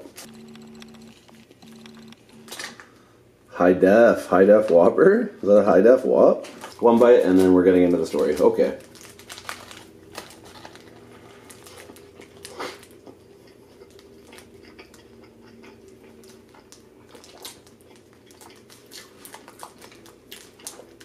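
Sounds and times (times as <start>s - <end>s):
chewing with mouth clicks: 10.4s - 21.0s.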